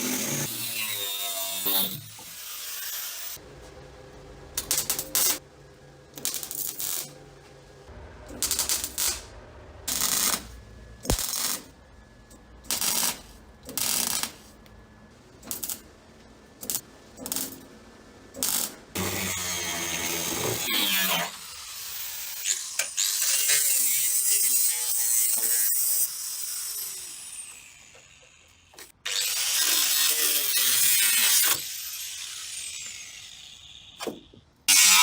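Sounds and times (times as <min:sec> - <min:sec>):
welder crackling: 0:04.6 - 0:05.4, 0:06.2 - 0:07.2, 0:08.3 - 0:11.8, 0:12.6 - 0:14.5, 0:15.4 - 0:15.9, 0:16.6 - 0:17.6, 0:18.4 - 0:19.0.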